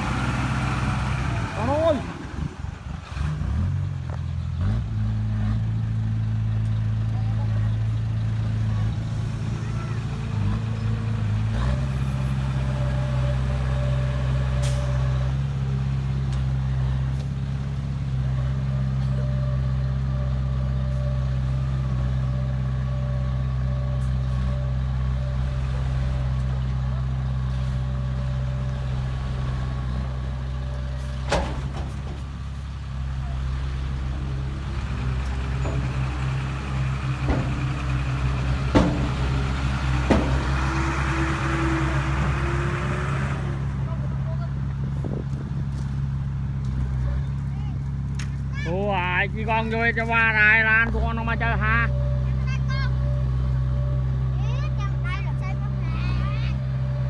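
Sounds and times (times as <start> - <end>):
heavy diesel engine running: 0.0 - 57.0
sharp metallic clunks: 31.2 - 32.6, 34.2 - 42.7.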